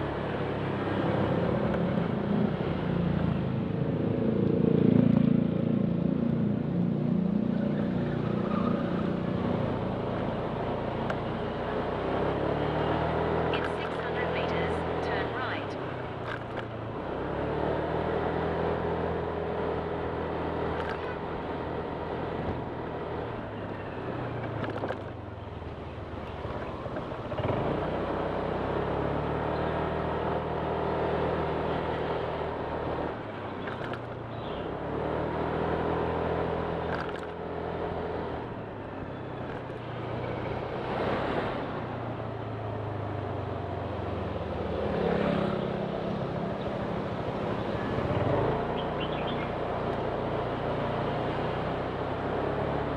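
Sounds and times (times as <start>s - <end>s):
wind and road noise: 0.0s - 52.9s
scooter engine running: 18.3s - 41.0s, 41.6s - 52.9s.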